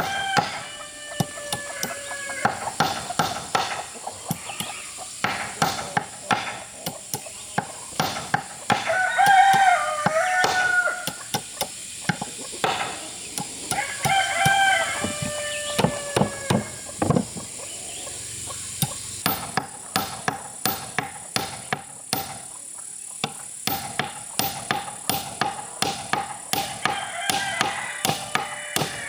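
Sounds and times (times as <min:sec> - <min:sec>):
rooster crowing: 0:00.0 - 0:02.9, 0:08.6 - 0:11.5, 0:12.8 - 0:19.0, 0:26.6 - 0:29.0
sharp knocks: 0:01.2 - 0:17.5, 0:18.8 - 0:22.4, 0:23.2 - 0:29.0.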